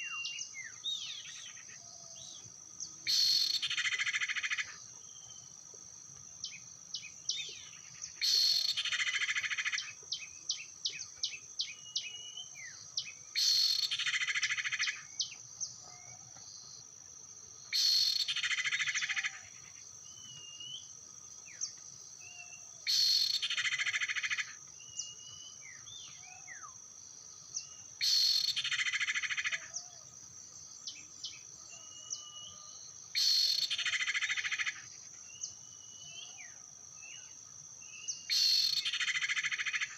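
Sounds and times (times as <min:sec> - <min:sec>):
high insect drone: 0:00.0 - 0:39.9
short whistled bird chirps: 0:38.0 - 0:38.9.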